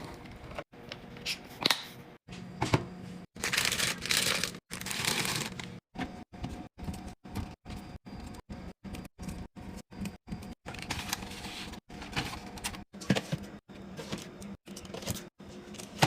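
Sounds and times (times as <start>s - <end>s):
plastic packaging crinkling: 3.4s - 5.8s.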